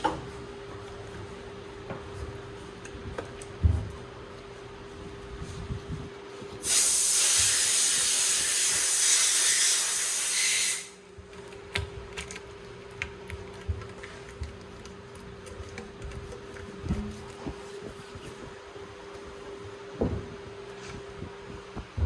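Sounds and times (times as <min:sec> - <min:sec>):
gas hissing under pressure: 0:06.6 - 0:11.0.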